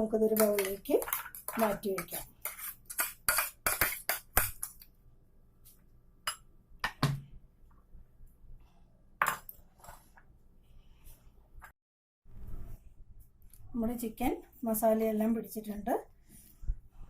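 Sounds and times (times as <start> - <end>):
spoon scraping a bowl: 0.3 - 4.8.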